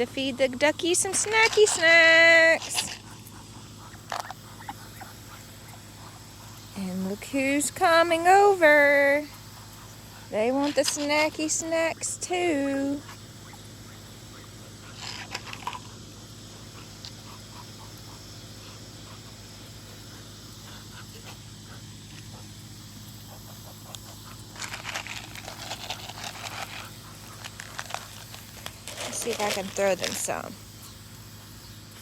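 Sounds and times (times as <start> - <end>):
steady low hum: 0.0 - 32.0
ducks and geese calling: 2.2 - 6.9, 9.4 - 15.6, 16.5 - 22.5, 26.6 - 30.5.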